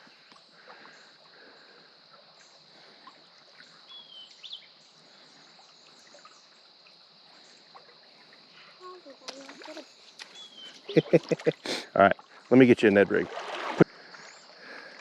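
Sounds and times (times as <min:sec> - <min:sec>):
creek water running: 0:00.0 - 0:15.0
whistled bird call: 0:10.2 - 0:11.4.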